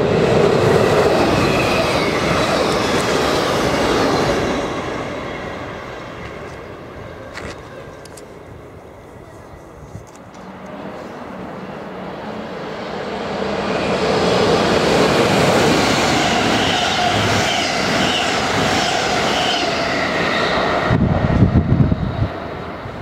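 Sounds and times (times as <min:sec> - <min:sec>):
train wheels rattling on rails: 0:00.0 - 0:08.5, 0:13.3 - 0:23.0
low train rumble: 0:00.0 - 0:23.0.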